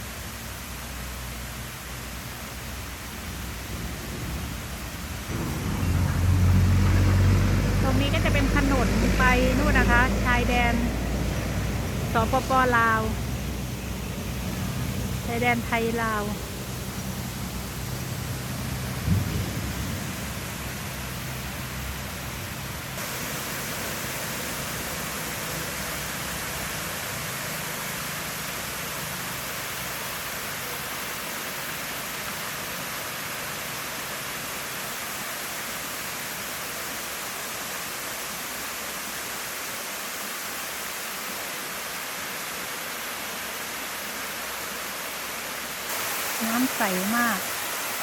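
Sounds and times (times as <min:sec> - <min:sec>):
waterfall pouring: 0:00.0 - 0:48.0
low rumble: 0:03.2 - 0:15.4, 0:16.4 - 0:22.8.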